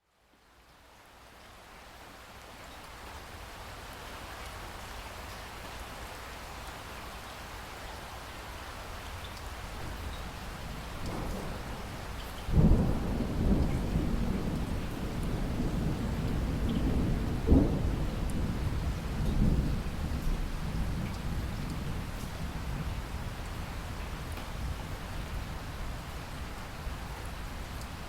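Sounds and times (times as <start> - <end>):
steady rain: 0.0 - 28.0
raindrops ticking: 9.0 - 24.7, 26.5 - 28.0.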